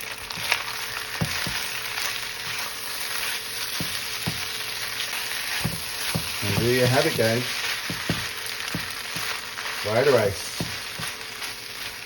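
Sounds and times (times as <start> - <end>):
fried rice sizzling in a pan: 0.0 - 12.0
knocks against a pan: 7.9 - 9.3.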